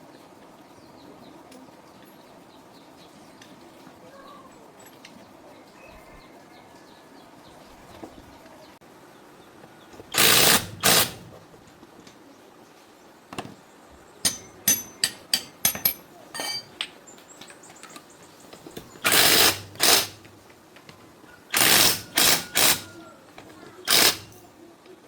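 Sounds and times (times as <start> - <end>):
power tool running: 10.1 - 11.4, 19.0 - 20.3, 21.5 - 23.0, 23.8 - 24.5
metallic clinks of tools: 14.2 - 18.1, 23.8 - 24.5.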